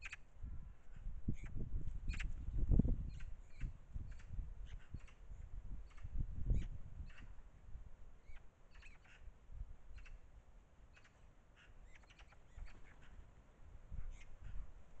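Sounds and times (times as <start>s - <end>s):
faint bird calls: 0.0s - 2.4s, 3.0s - 7.4s, 8.2s - 14.8s.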